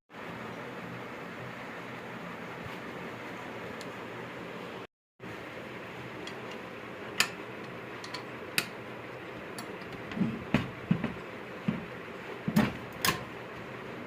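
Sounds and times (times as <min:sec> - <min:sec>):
dull knocks: 0:10.0 - 0:12.9.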